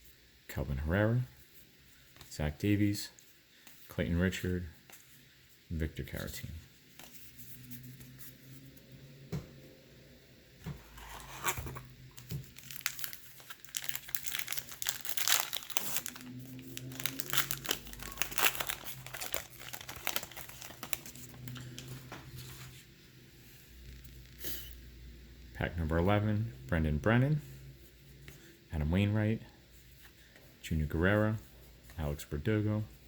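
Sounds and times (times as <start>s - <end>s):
card pack wrapper tearing: 10.9s - 21.8s.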